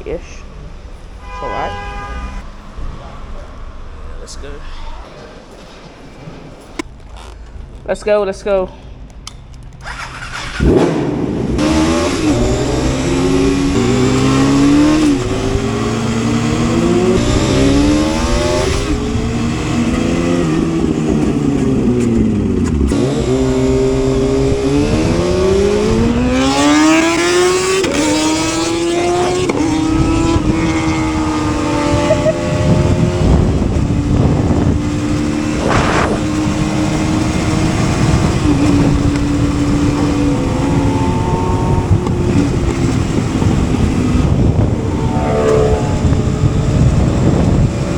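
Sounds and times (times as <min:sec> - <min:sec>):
wind noise: 0:08.7 - 0:47.9
motorcycle engine accelerating: 0:09.6 - 0:47.9.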